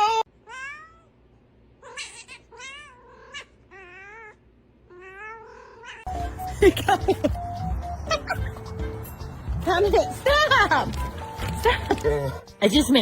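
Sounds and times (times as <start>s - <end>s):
cat yowling: 0.0s - 1.1s, 1.8s - 6.1s.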